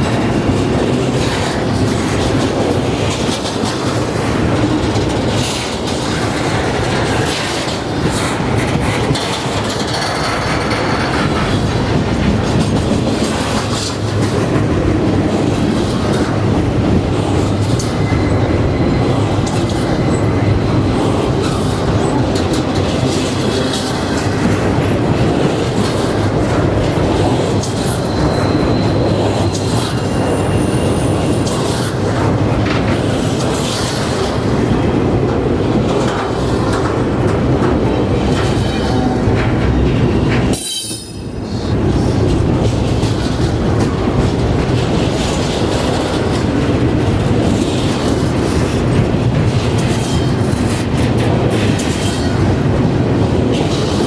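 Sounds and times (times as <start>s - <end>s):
wheels clacking over rail joints: 0.0s - 54.0s
wheel squeals: 27.6s - 31.9s.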